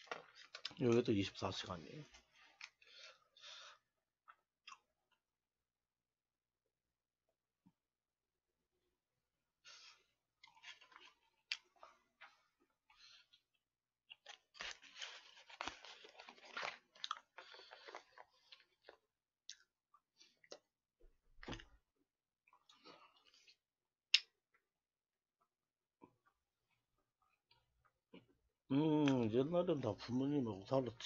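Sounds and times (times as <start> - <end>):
person chewing and crunching food: 2.1 - 5.3, 9.7 - 24.7.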